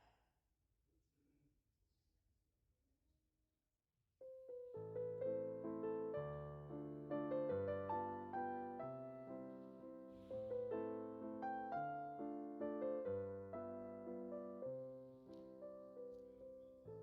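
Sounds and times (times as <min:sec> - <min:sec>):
soft slow solo piano music: 0:04.2 - 0:17.0.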